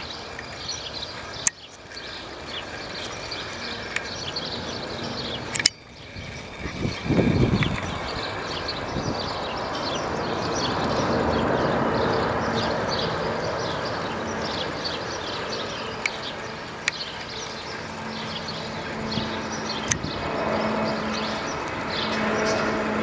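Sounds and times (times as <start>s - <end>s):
jet aircraft rushing noise: 0.0s - 23.0s
sharp clicks: 5.5s - 5.8s.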